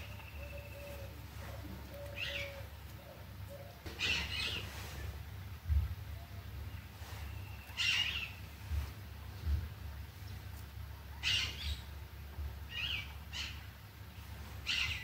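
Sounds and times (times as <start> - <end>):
birds chirping: 0.0 - 8.9, 11.2 - 12.0, 12.6 - 13.9, 14.6 - 15.0
low steady hum: 0.0 - 15.0.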